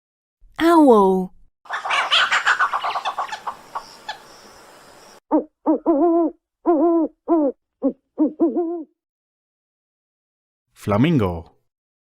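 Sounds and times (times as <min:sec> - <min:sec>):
owl hooting: 0:01.7 - 0:09.0.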